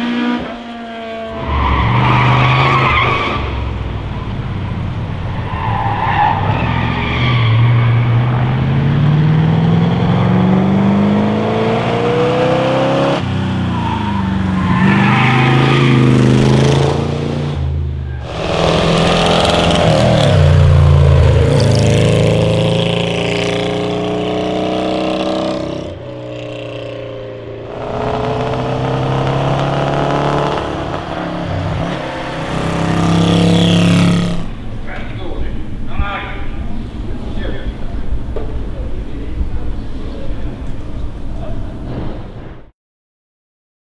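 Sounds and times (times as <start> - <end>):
racing car engines accelerating: 0.0 - 42.7.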